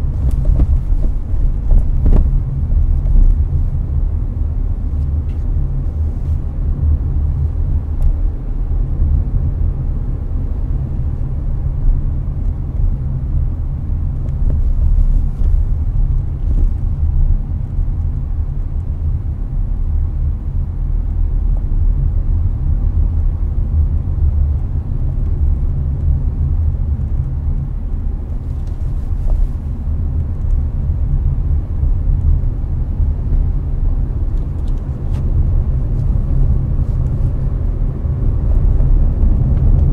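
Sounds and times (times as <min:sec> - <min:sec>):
air conditioner fan running: 0:00.0 - 0:08.6
road and tyre rumble: 0:00.0 - 0:39.9.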